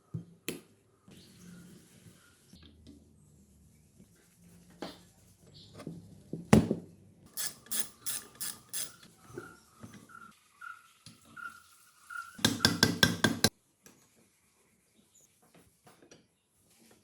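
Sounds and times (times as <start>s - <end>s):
rasping strokes: 7.3s - 9.1s.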